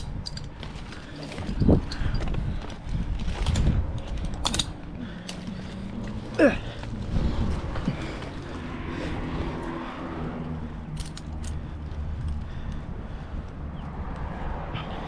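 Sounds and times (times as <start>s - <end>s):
metallic clicks of climbing hardware: 0.0s - 6.2s, 10.8s - 12.8s
low engine hum: 0.0s - 15.0s.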